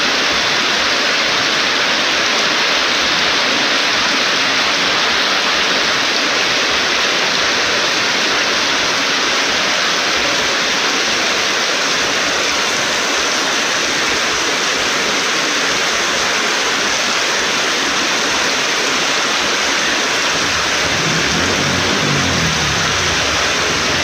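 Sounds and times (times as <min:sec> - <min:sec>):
heavy storm rain pouring: 0:18.0 - 0:24.0
low engine hum: 0:19.9 - 0:24.0.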